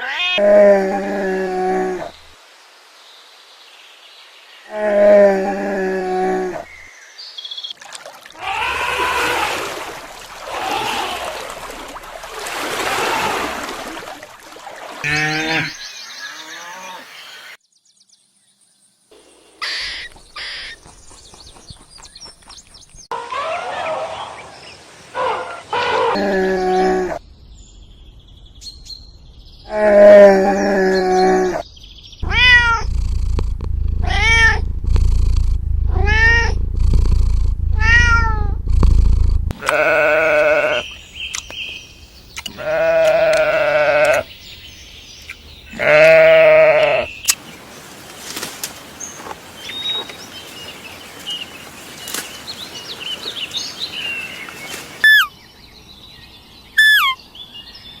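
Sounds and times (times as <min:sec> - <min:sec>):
animal cries: 0:00.0 - 0:02.2, 0:08.4 - 0:09.8, 0:23.2 - 0:24.4, 0:39.6 - 0:40.8, 0:42.5 - 0:44.2, 0:45.7 - 0:47.1
small chirps: 0:32.2 - 0:39.8.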